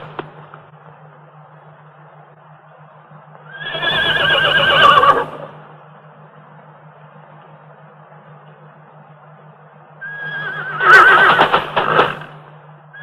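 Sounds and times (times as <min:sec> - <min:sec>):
low steady hum: 0:00.0 - 0:13.0
horse whinnying: 0:03.5 - 0:05.6, 0:10.0 - 0:12.3.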